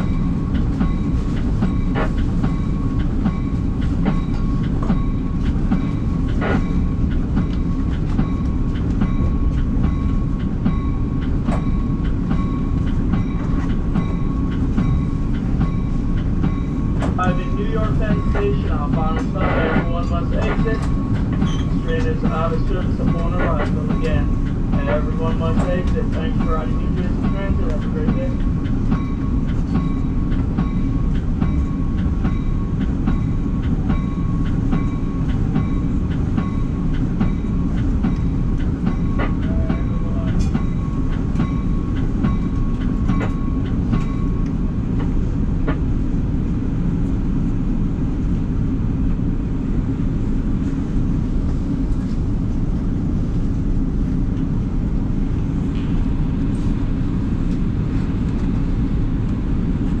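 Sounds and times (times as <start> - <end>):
track clicks: 0.0 - 45.9
train wheels rumbling on track: 0.0 - 60.0
high whine: 10.8 - 44.7.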